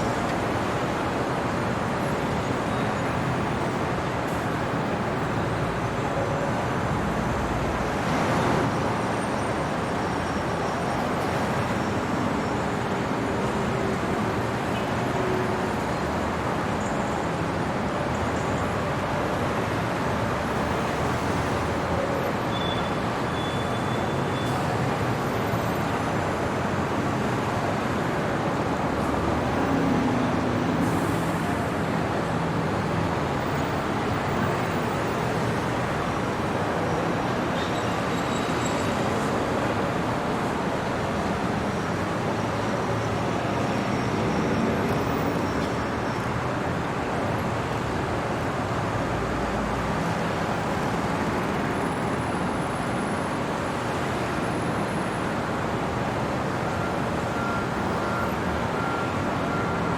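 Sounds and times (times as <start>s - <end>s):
passing vehicles hissing: 0.1s - 59.9s.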